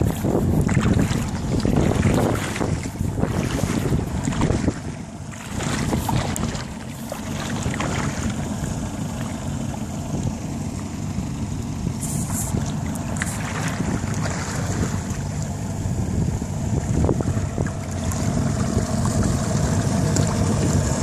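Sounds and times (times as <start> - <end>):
outboard motorboat engine: 0.0 - 21.0
water rushing past hull: 0.0 - 21.0
wind buffeting microphone: 0.0 - 21.0.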